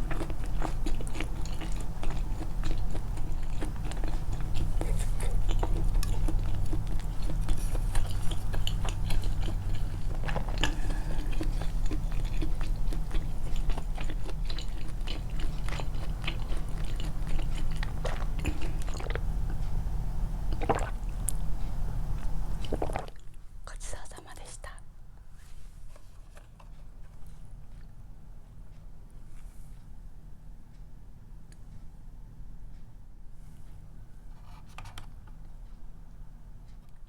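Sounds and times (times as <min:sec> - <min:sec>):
close chewing and biting: 0:00.0 - 0:23.4
steady low hum: 0:00.0 - 0:37.0.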